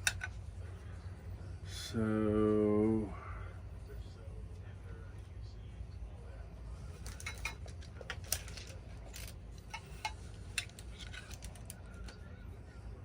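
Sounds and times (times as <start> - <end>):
low steady hum: 0.0 - 13.0
clicks of handling small tools: 7.0 - 12.2.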